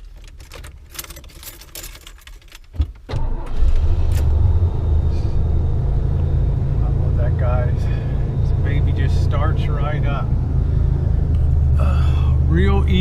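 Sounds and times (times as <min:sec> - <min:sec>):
keys jangling: 0:00.0 - 0:03.0
engine starting and idling: 0:03.1 - 0:08.0.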